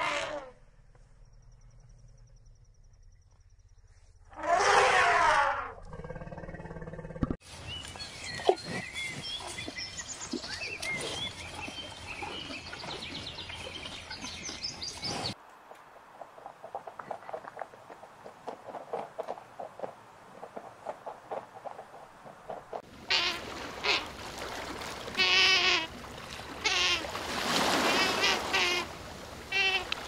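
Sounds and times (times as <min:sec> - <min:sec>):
elephant trumpeting: 0:04.3 - 0:05.8
birds chirping: 0:07.5 - 0:15.4.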